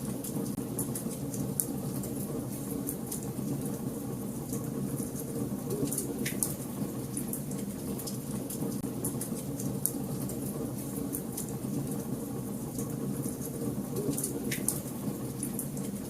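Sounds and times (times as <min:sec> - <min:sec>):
wood fire crackling and popping: 0:04.5 - 0:12.0.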